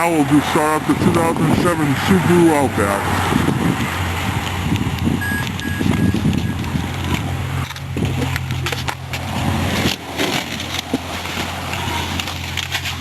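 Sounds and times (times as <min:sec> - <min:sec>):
crunching and crackling: 0:06.2 - 0:13.0.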